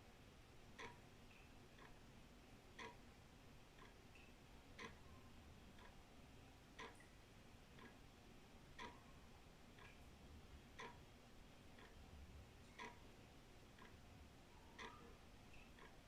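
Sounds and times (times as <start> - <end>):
wall clock ticking: 0.7 - 2.1, 2.7 - 6.1, 6.8 - 7.1, 7.7 - 8.1, 8.7 - 14.0, 14.6 - 16.0.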